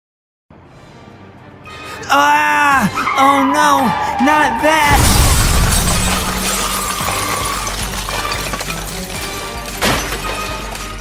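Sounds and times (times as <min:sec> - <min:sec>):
background music: 0:00.5 - 0:11.0
cartoon explosion blast: 0:04.8 - 0:06.3
glass shattering: 0:04.8 - 0:11.0.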